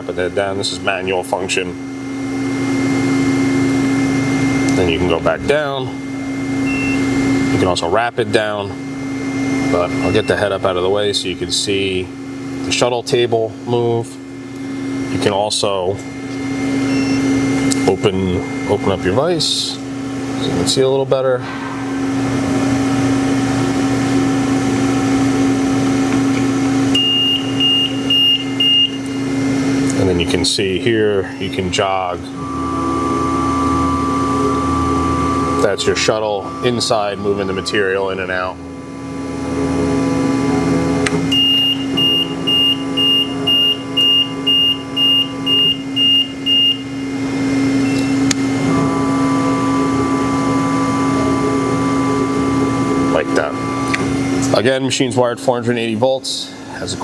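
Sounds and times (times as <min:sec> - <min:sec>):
hydraulic system humming: 0:00.0 - 0:57.0
high electronic beep: 0:32.4 - 0:38.7, 0:41.3 - 0:46.8.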